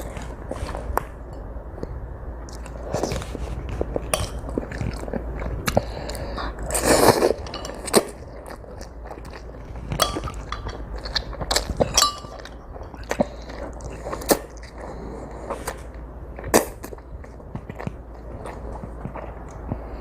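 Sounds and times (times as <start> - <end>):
chewing: 1.8 - 20.0
utensils clinking against dish: 11.8 - 12.6.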